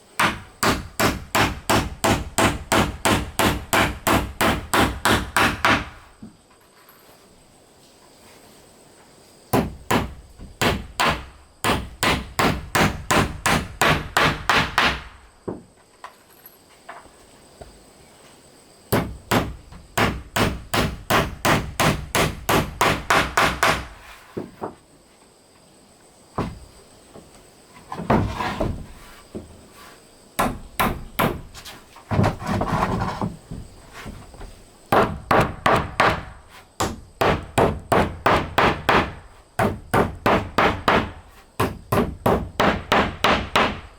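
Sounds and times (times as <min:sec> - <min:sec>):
hammer striking nails into wood: 0:00.2 - 0:06.0, 0:09.6 - 0:15.2, 0:18.9 - 0:24.0, 0:30.4 - 0:31.5, 0:34.9 - 0:43.9.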